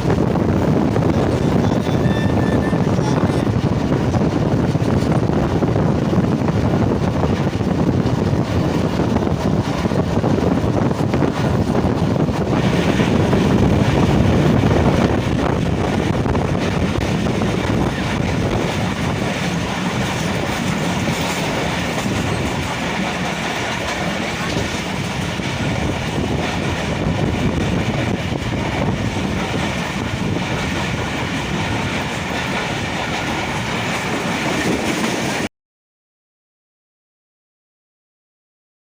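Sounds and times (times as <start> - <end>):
train running at speed: 0.0 - 35.5.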